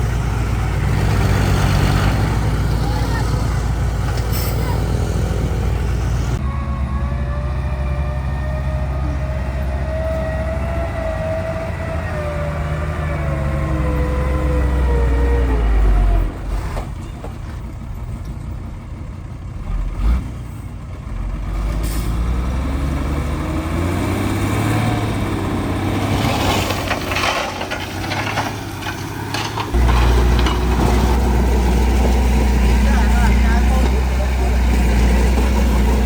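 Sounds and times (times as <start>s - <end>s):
diesel engine rumbling: 0.0s - 36.0s
machinery rattling: 26.0s - 36.0s.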